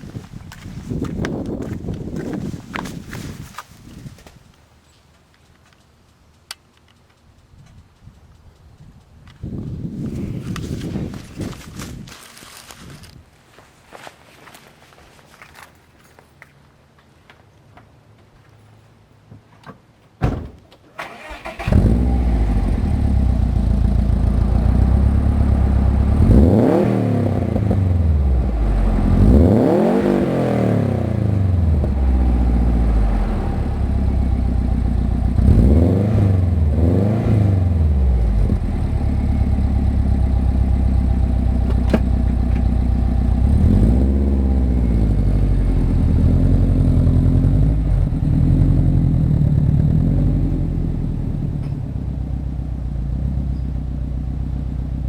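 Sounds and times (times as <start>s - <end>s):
car engine idling and revving: 21.0s - 55.0s.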